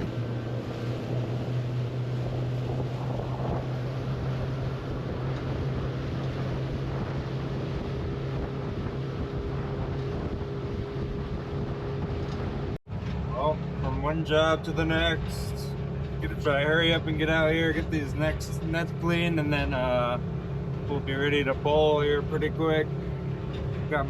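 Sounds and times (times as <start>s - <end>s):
wind noise on microphone: 0.0s - 13.4s
outboard motor running: 0.0s - 24.0s.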